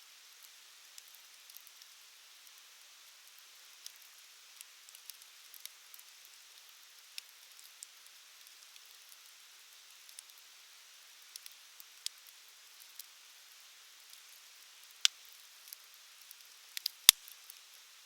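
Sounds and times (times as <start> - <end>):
soft steady hiss: 0.0 - 18.0
wood fire crackling: 11.3 - 13.0, 14.1 - 17.6.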